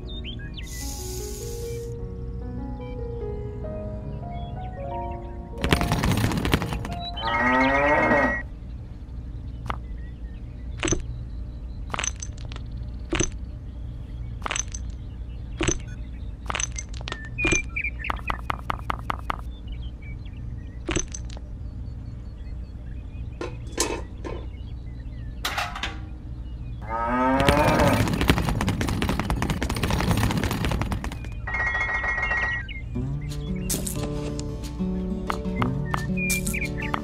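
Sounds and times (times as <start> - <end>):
low steady hum: 0.0 - 37.0
cow mooing: 7.2 - 8.4, 26.8 - 28.0.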